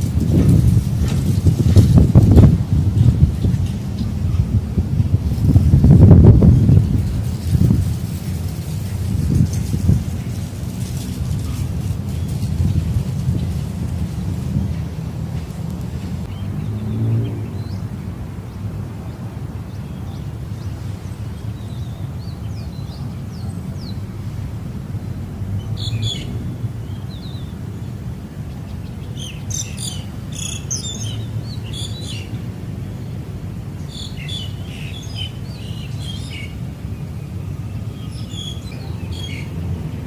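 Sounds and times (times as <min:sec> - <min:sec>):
small birds chirping: 0:25.6 - 0:33.2, 0:33.8 - 0:39.8.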